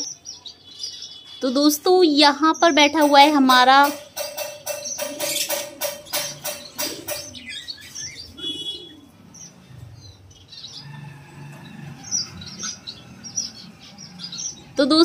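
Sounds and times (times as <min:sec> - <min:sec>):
buzzy bird trill: 0:00.0 - 0:09.6
small birds chirping: 0:00.0 - 0:15.0
rapid jingling rattle: 0:02.9 - 0:07.5.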